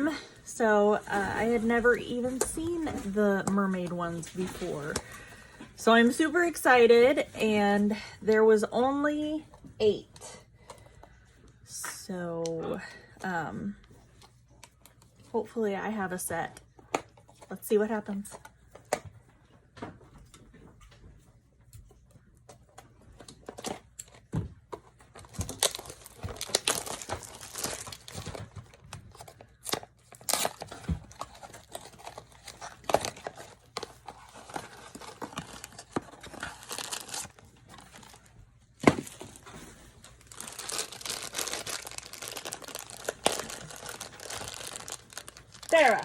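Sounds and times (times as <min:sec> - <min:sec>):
packaging tearing and crinkling: 0:25.1 - 0:46.0.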